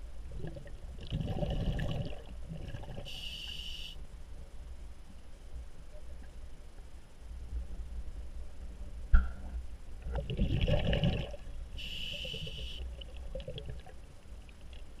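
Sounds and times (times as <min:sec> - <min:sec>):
water sloshing and bubbling: 0:00.0 - 0:04.2, 0:09.2 - 0:15.0
short hiss: 0:03.1 - 0:04.0, 0:11.8 - 0:12.8.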